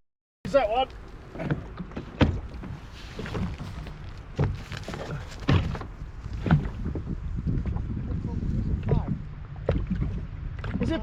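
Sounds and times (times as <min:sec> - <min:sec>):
low wind and water rumble: 0:00.5 - 0:11.0.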